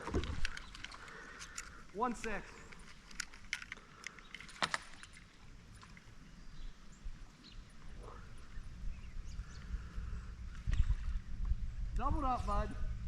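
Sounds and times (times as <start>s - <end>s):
small clicks: 0.0s - 5.2s
low rumble: 7.8s - 13.0s.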